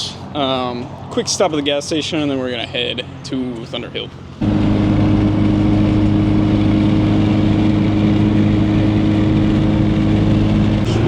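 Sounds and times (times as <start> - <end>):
car engine running: 4.0 - 11.0.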